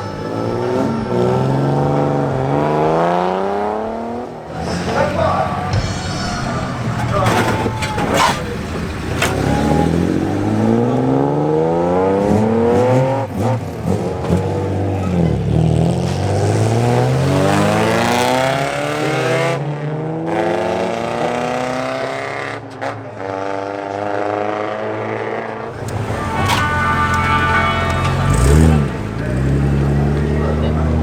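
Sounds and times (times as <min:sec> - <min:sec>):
car engines revving: 0:00.0 - 0:31.0.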